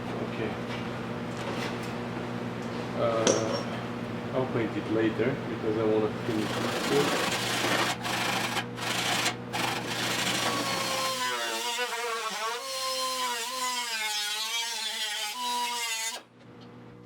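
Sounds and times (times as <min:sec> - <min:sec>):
power tool grinding sheet metal: 0:06.2 - 0:16.3
power tool whine: 0:06.3 - 0:16.3.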